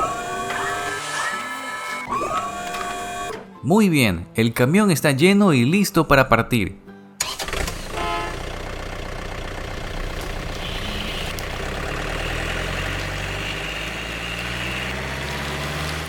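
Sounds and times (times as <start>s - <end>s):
truck engine drone: 0.0s - 3.5s, 7.2s - 16.0s.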